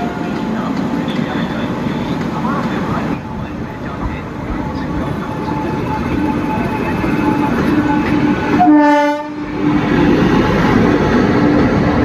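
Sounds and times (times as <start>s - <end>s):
train rumbling: 0.0s - 12.0s
train horn blast: 8.4s - 9.5s.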